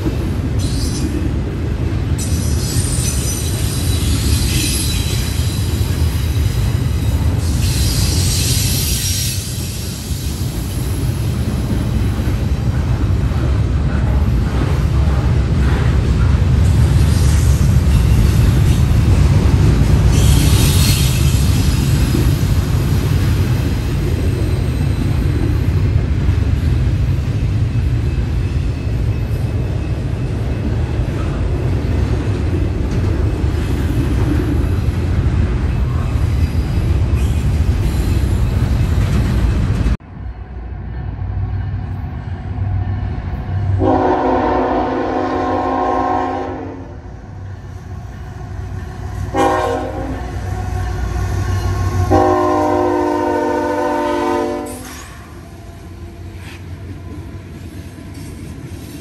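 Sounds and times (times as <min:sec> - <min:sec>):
freight train wheels rumbling: 0:00.0 - 0:59.0
locomotive air horn: 0:43.8 - 0:47.0, 0:49.3 - 0:50.5, 0:51.4 - 0:55.0.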